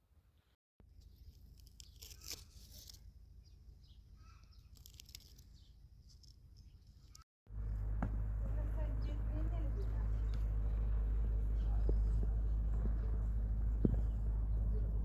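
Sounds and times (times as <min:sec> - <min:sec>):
faint low rumble: 0:07.5 - 0:15.0.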